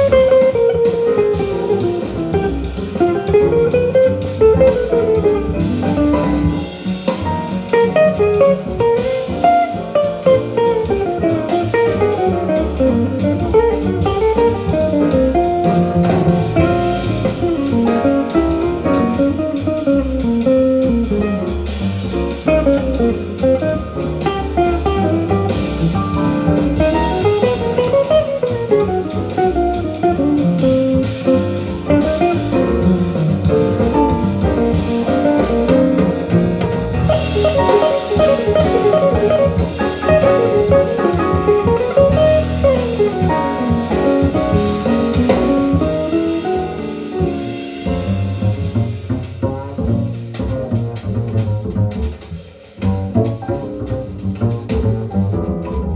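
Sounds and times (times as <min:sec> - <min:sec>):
drum kit: 0:00.0 - 0:55.9
jazz guitar melody: 0:00.0 - 0:55.9.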